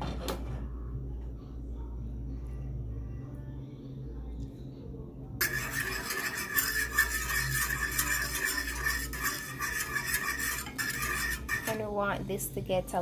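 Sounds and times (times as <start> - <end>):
utensil stirring sauce in a pan: 5.4 - 12.0.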